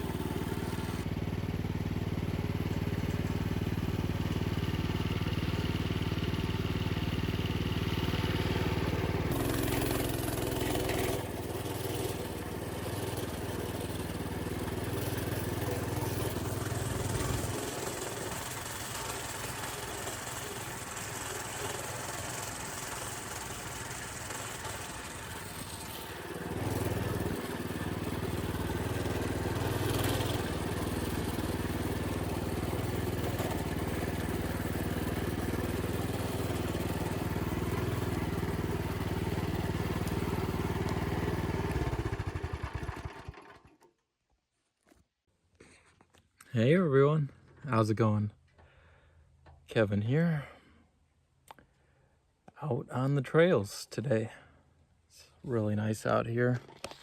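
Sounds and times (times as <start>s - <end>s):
minibike engine running: 0.0s - 43.8s.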